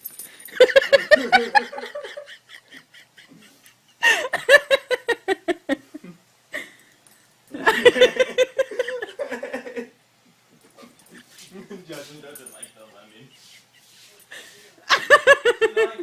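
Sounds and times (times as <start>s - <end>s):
laughter in rhythmic bursts: 0.5s - 6.7s, 7.6s - 10.0s, 12.8s - 16.0s.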